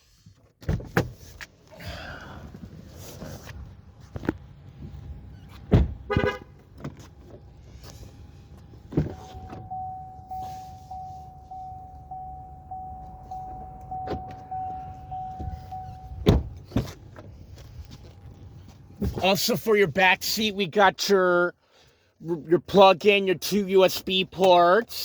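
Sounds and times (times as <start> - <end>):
car warning chime: 9.1 - 16.6.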